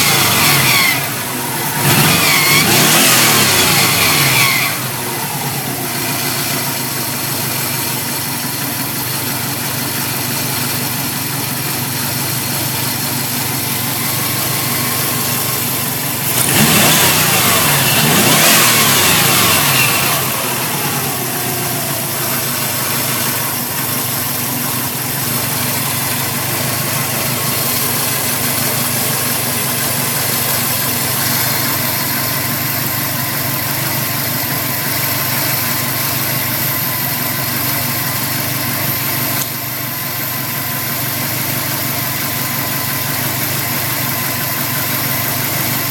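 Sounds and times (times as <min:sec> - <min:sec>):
car engine idling and revving: 0:00.0 - 0:45.9.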